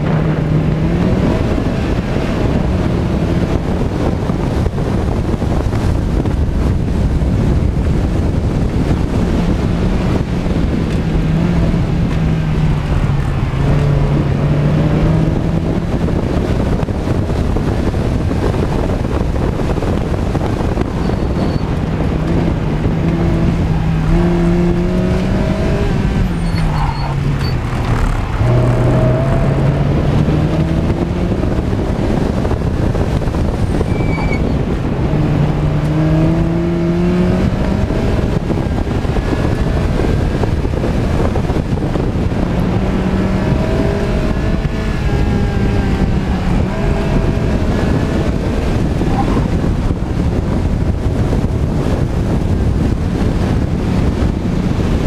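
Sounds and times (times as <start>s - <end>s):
car engine accelerating hard: 0.0s - 55.0s.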